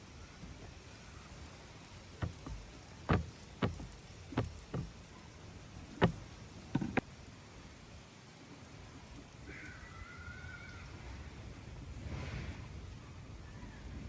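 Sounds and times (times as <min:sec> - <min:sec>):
sharp knocks: 0:02.2 - 0:05.0, 0:06.0 - 0:07.1.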